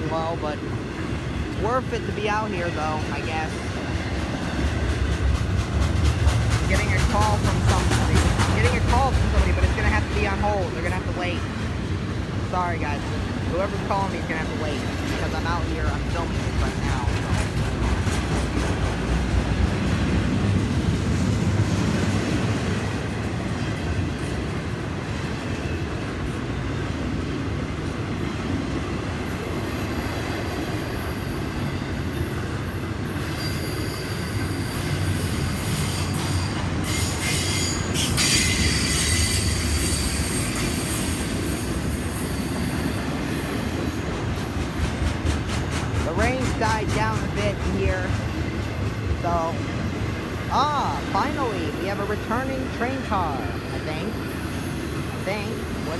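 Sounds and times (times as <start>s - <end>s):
train wheels rumbling on rail: 0.0s - 55.9s
high wheel squeal: 33.2s - 43.1s.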